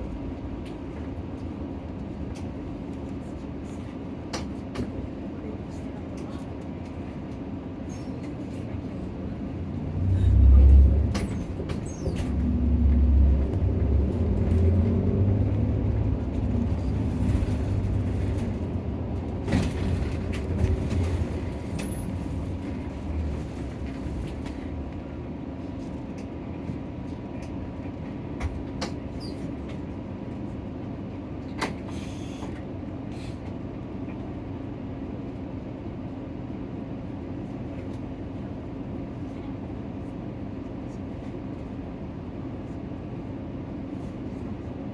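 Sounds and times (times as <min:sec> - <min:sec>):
bus diesel engine droning: 0:07.6 - 0:25.8
road noise: 0:09.2 - 0:25.6.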